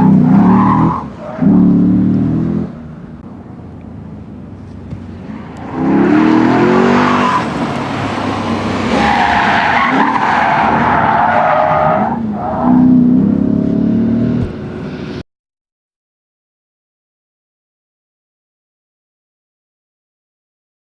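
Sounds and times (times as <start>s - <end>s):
tyres squealing: 0.0s - 13.7s
car engine revving: 0.0s - 15.2s.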